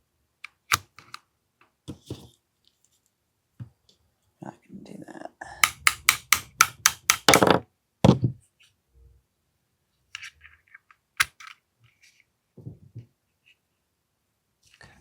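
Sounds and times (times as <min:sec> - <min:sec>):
pistol parts clicking: 0:05.6 - 0:07.6, 0:11.2 - 0:11.6.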